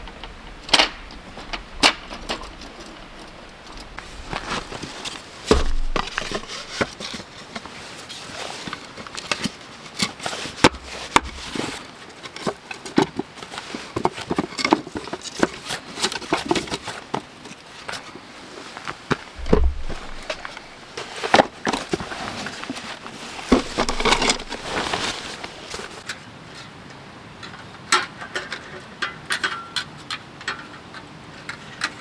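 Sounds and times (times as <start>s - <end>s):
rustling: 0.0s - 26.1s
knocks and clicks: 19.4s - 20.8s.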